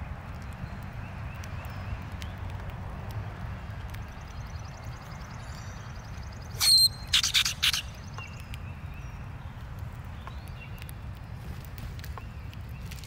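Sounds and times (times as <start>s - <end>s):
bird whistling high note: 6.6s - 7.8s.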